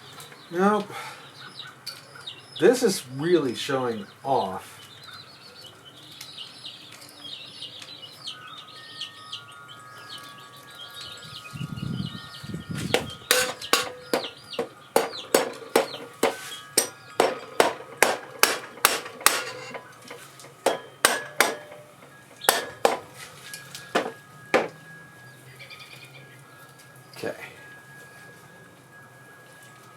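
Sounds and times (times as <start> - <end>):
birds chirping: 0.0 - 27.2
hammer striking metal: 12.9 - 24.8.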